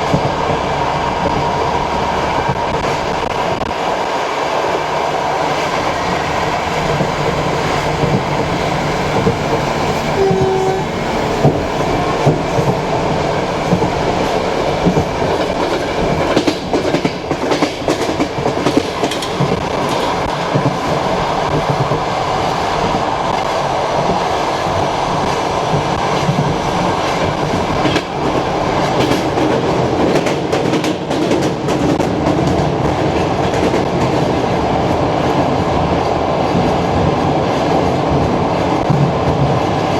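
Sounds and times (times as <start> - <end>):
wheels clacking over rail joints: 0.0 - 24.2, 24.8 - 34.4
train rolling rumble: 0.0 - 39.9.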